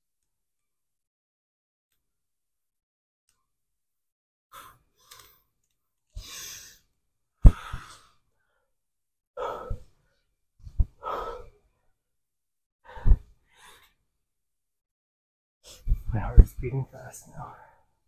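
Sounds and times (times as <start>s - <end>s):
man breathing heavily: 6.2s - 6.8s, 7.4s - 8.6s, 9.4s - 10.1s, 10.7s - 11.6s, 12.9s - 13.9s.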